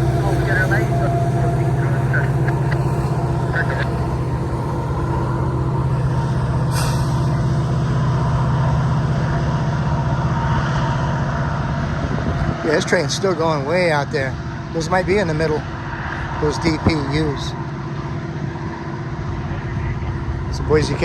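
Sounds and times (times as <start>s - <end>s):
ringing tones: 0.0s - 9.2s
freight train rolling past: 0.0s - 19.0s
sharp hiss or clank: 6.7s - 7.3s.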